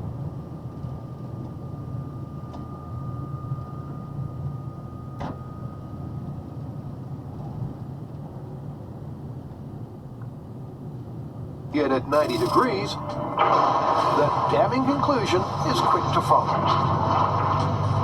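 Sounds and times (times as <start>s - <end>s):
road noise: 0.0s - 18.0s
truck engine drone: 0.0s - 18.0s
thin steady whistle: 1.8s - 6.2s.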